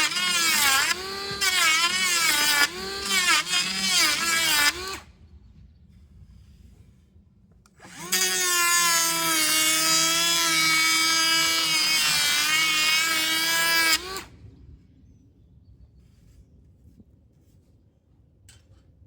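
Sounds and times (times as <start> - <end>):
electric wood planer whining: 0.0 - 5.1, 7.8 - 14.3.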